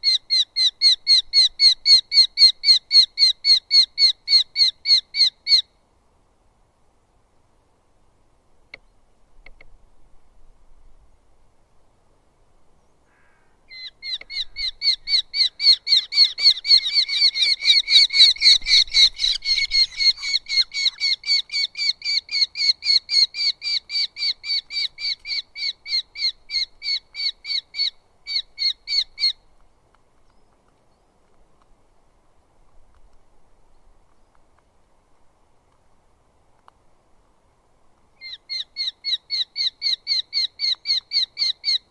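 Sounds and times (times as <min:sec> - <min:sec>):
bird calling sharp repeated notes: 0:13.2 - 0:29.5, 0:38.2 - 0:41.9.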